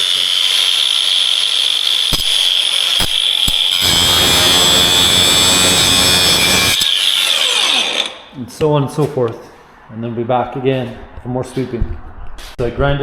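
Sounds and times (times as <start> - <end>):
angle grinder whining: 0.0 - 8.2
disc grinding on concrete: 3.7 - 8.2.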